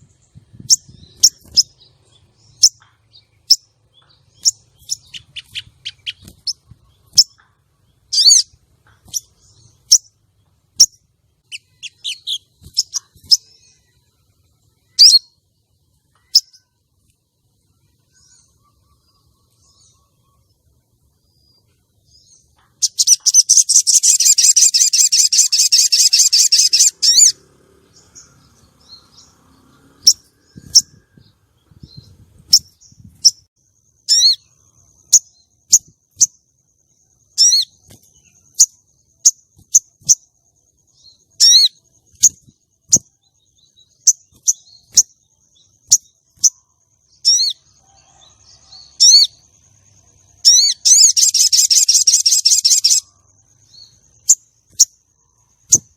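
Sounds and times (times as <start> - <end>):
bird chattering trill: 4.3 - 9.3, 10.8 - 13.6, 22.8 - 27.4, 34.1 - 34.5, 37.3 - 37.8, 41.3 - 43.0, 50.4 - 53.2.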